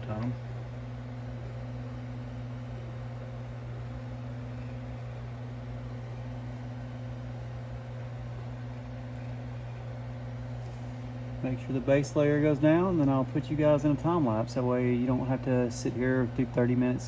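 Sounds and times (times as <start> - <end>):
printer humming: 0.0 - 17.0.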